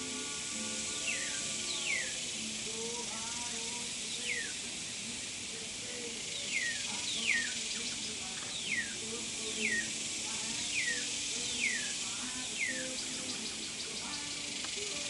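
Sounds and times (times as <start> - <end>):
steady hiss: 0.0 - 15.0
bird whistles sliding downward: 10.7 - 13.5.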